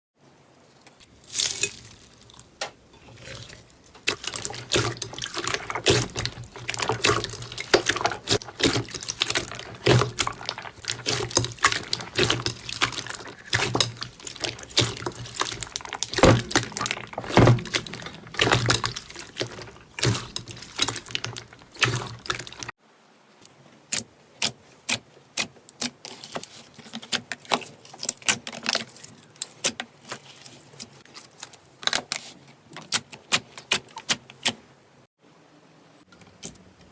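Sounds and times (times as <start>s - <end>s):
slime squishing: 0.8s - 22.8s.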